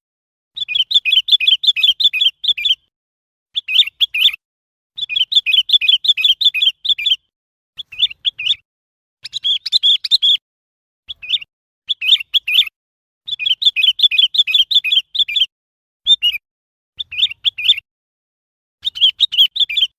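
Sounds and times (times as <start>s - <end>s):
bulbul calling: 0.6s - 2.9s, 3.5s - 4.4s, 5.0s - 10.4s, 11.1s - 12.7s, 13.3s - 15.5s, 16.1s - 16.4s, 17.0s - 17.8s, 18.8s - 19.9s.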